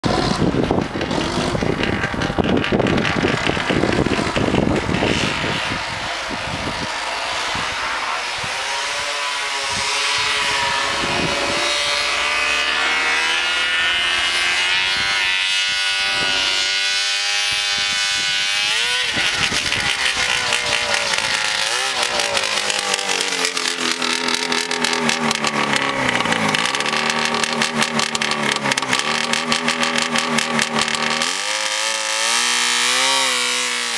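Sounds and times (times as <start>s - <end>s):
loud rushing noise: 0.0s - 26.6s
snowmobile engine running: 0.0s - 33.9s.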